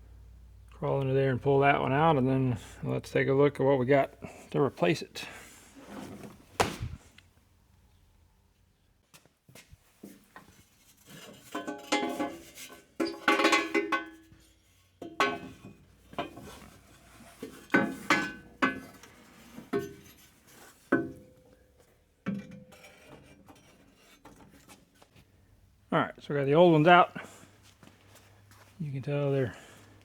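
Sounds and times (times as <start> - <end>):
metal exhaust headers clanking: 11.2 - 20.4.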